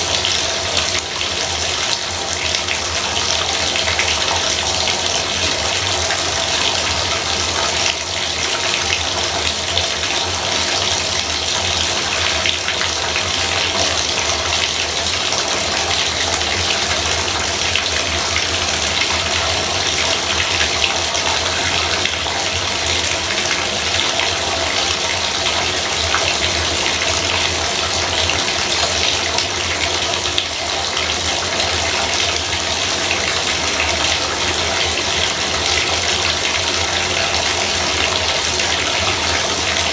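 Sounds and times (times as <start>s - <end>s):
faucet running water: 0.0s - 39.9s.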